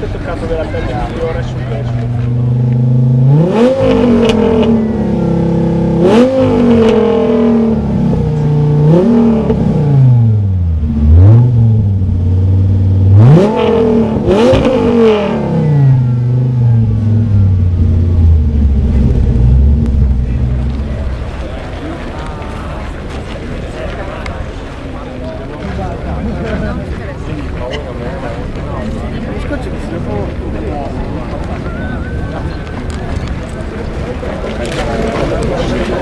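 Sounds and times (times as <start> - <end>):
car engine revving and idling: 0.0 - 24.5.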